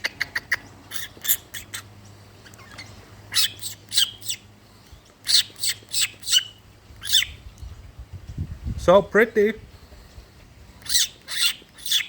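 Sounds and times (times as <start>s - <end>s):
bird calling sharp notes: 0.0s - 4.5s, 5.1s - 7.5s, 10.8s - 12.0s.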